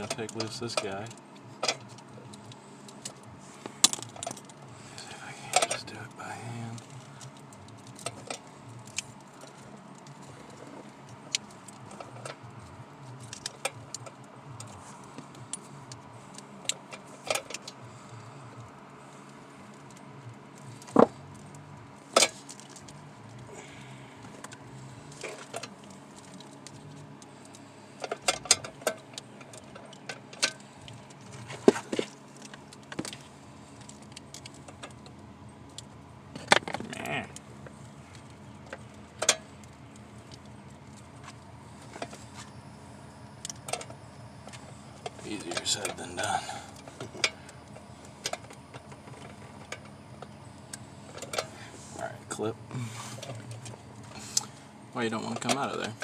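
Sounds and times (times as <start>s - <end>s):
faint low hum: 0.0s - 56.0s.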